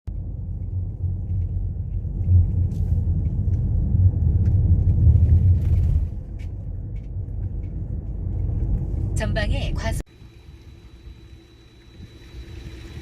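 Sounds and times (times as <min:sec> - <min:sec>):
car road and engine rumble: 0:00.1 - 0:13.0.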